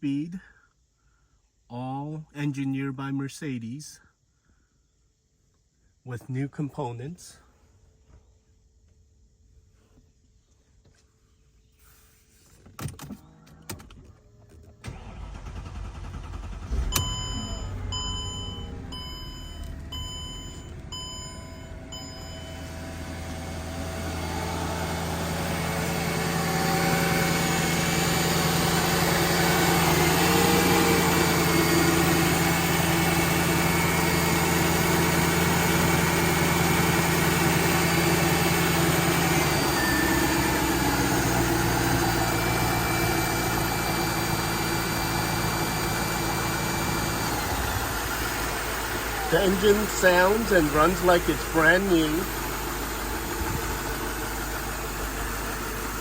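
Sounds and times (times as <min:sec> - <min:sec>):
car engine starting and idling: 0:12.8 - 0:56.0
dashboard warning chime: 0:16.9 - 0:24.6, 0:39.4 - 0:42.2, 0:49.2 - 0:52.6.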